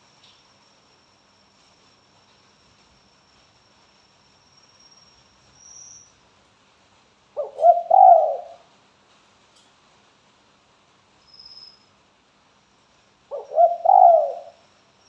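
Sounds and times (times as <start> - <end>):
dove cooing: 7.4 - 8.6, 13.3 - 14.6.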